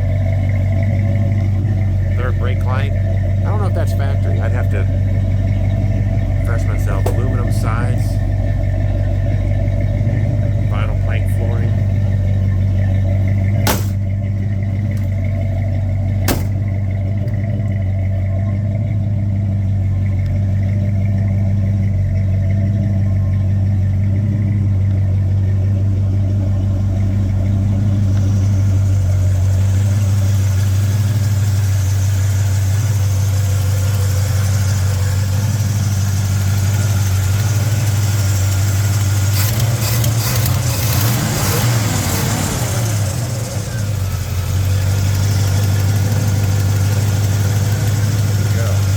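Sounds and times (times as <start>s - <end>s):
truck engine idling: 0.0s - 48.9s
clicks and rattles: 11.9s - 17.8s, 38.9s - 41.8s.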